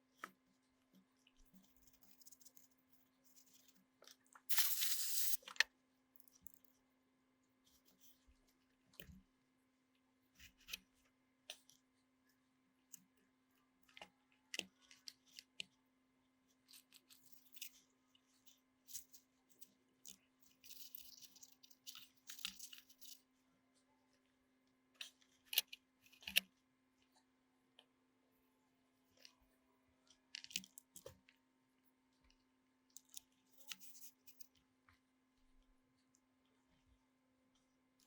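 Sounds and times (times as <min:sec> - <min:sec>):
small tools clicking and scraping: 0:04.5 - 0:05.6.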